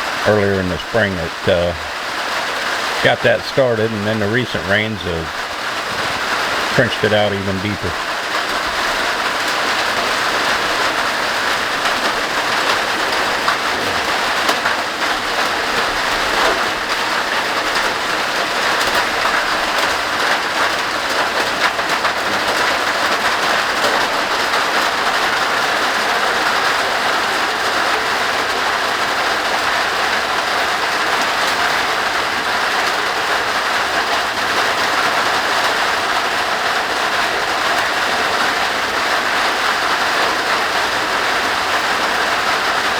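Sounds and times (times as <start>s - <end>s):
heavy rain hissing: 0.0s - 23.3s.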